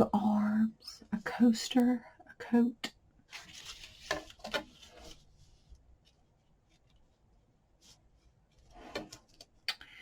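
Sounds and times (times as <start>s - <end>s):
paper scraps rustling: 3.3s - 5.3s.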